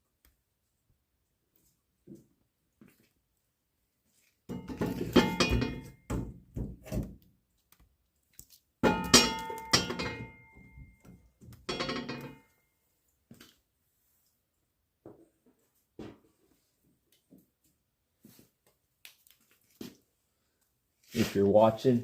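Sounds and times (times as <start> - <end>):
metallic knocks on wood stove: 4.5 - 7.0, 8.8 - 12.4.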